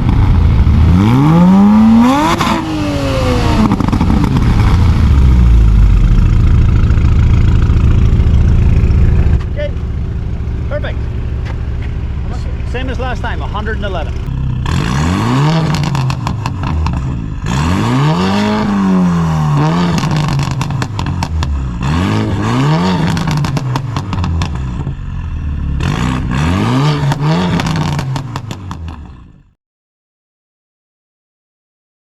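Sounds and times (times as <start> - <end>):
sports car exhaust revving: 0.0 - 29.5.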